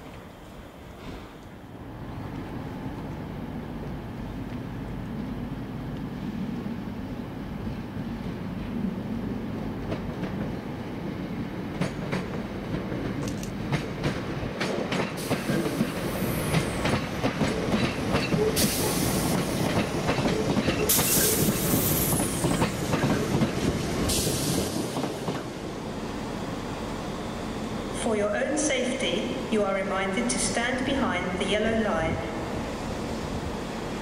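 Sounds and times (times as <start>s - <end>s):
train wheels clicking over joints: 11.7s - 25.6s.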